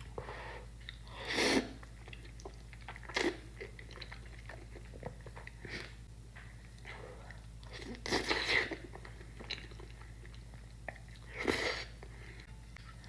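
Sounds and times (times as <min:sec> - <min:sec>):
wet chewing: 0:01.8 - 0:05.9.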